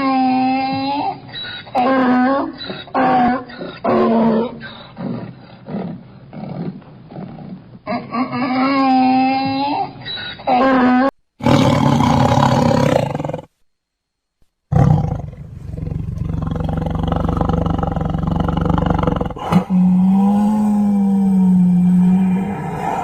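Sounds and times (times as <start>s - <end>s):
lion roaring: 11.4s - 13.5s, 14.7s - 23.0s.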